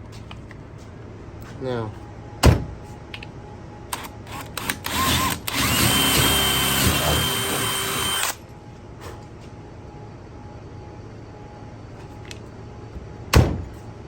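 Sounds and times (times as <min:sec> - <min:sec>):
power drill boring into wood: 0:04.5 - 0:08.4.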